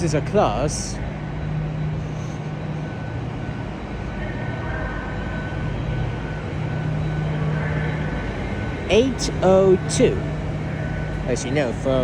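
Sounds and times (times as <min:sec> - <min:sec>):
faint high-pitched whining tones: 0:00.0 - 0:12.0
standing train humming: 0:00.0 - 0:12.0.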